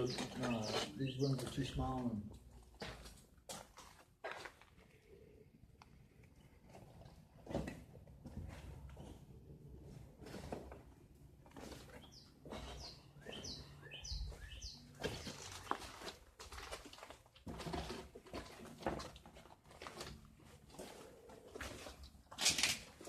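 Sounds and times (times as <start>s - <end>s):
footsteps crunching on debris: 0.0s - 5.0s, 10.2s - 23.0s.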